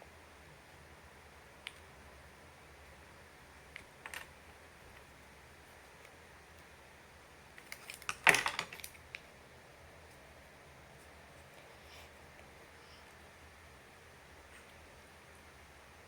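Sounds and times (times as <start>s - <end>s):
small hard parts clicking: 3.7s - 4.4s, 7.6s - 9.2s.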